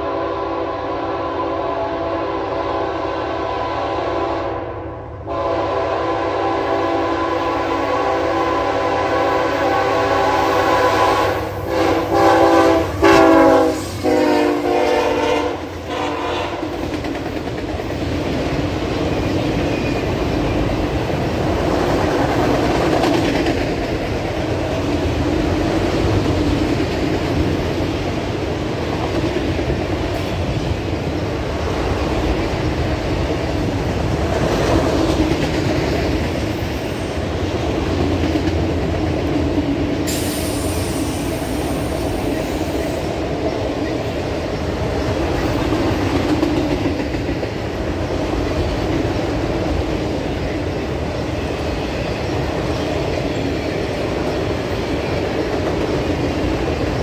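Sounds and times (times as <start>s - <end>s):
locomotive air horn blasts: 0.0s - 16.7s.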